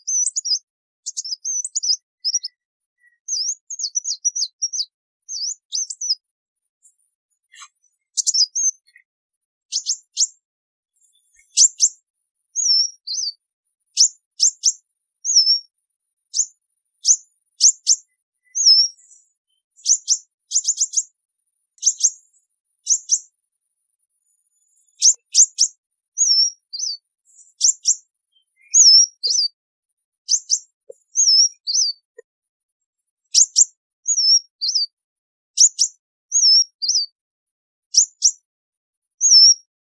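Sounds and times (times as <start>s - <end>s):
bird high thin chirps: 0.0s - 9.1s, 9.7s - 10.4s, 11.0s - 15.7s, 16.3s - 21.2s, 21.8s - 23.3s, 24.7s - 29.6s, 30.3s - 32.2s, 33.2s - 35.0s, 35.6s - 37.2s, 37.9s - 38.5s, 39.2s - 39.7s.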